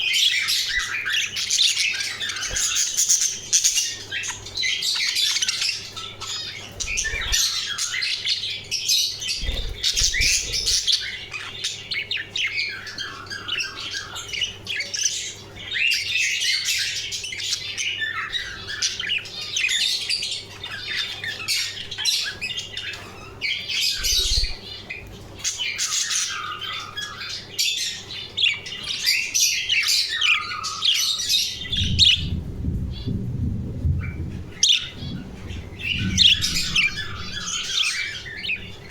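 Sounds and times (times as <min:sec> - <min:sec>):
budgerigars chattering: 0:00.0 - 0:32.3, 0:34.0 - 0:38.9
low rumble: 0:31.6 - 0:37.8.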